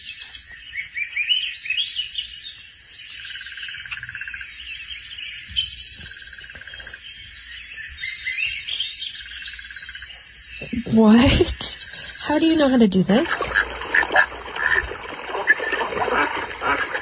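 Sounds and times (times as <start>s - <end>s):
birds chirping and singing: 0.0s - 17.0s.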